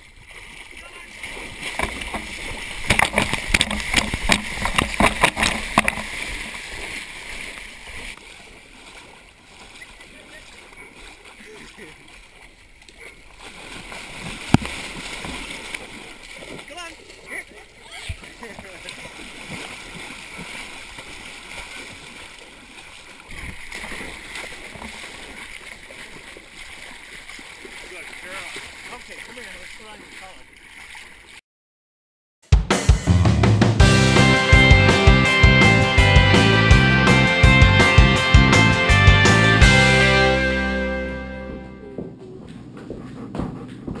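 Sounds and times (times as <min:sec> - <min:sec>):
dog splashing through water: 0:00.0 - 0:31.4
soft water wash: 0:00.0 - 0:31.4.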